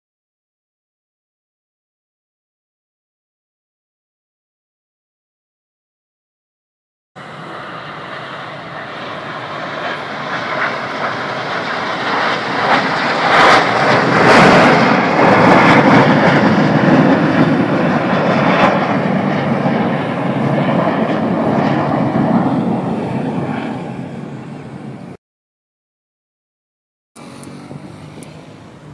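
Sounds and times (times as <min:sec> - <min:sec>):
aircraft engine roar flying past: 0:07.2 - 0:25.2, 0:27.2 - 0:28.9.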